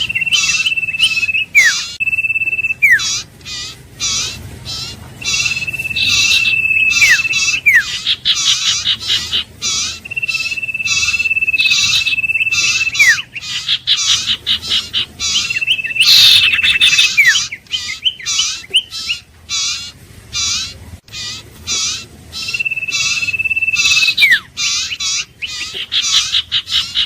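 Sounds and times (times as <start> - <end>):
bird long whistles: 0.0 - 3.3, 5.2 - 14.2, 15.2 - 19.2, 21.8 - 25.3
bird short repeated chirps: 0.0 - 19.2, 21.2 - 27.0.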